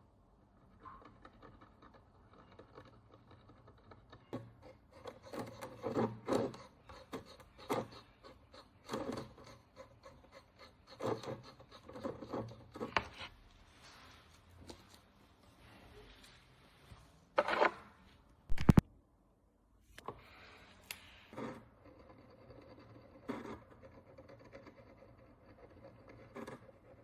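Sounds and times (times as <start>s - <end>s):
small scrapes and clicks: 0.6s - 17.8s, 18.5s - 18.8s, 19.9s - 27.0s
hand tool scraping coin: 0.8s - 13.3s, 20.9s - 27.0s.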